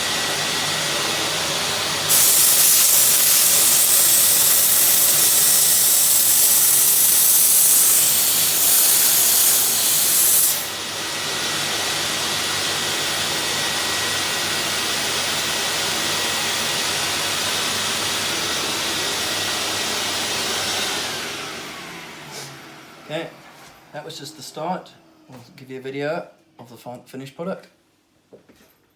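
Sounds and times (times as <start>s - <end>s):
steam cleaner hissing: 0.0s - 16.1s.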